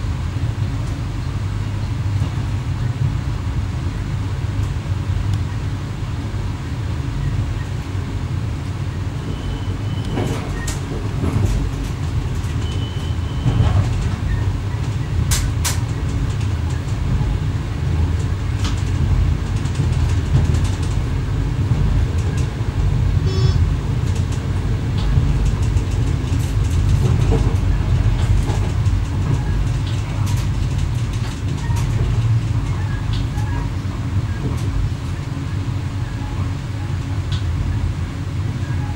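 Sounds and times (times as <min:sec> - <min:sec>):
electric train rumbling: 0:00.0 - 0:38.9
short high tones: 0:23.2 - 0:23.6.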